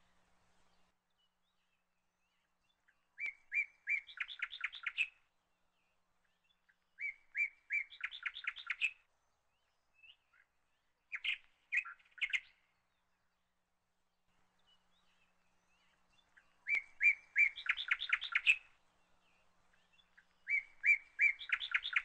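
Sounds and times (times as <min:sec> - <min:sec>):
songbird singing: 0:00.0 - 0:22.0.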